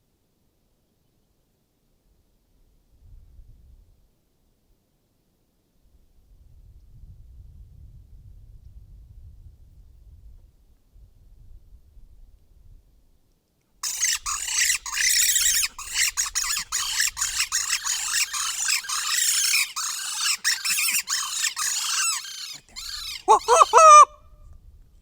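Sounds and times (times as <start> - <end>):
coyotes yipping and howling: 13.8 - 24.1.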